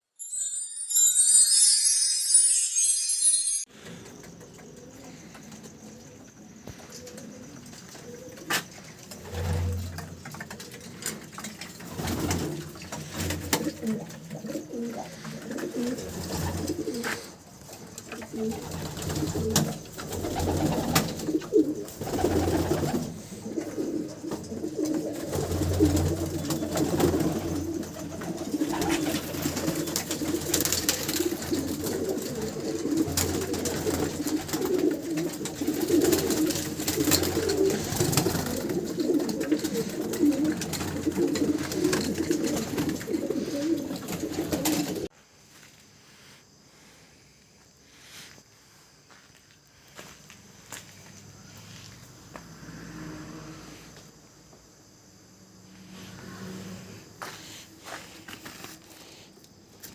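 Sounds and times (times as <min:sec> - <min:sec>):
pigeons cooing: 0:04.0 - 0:45.1.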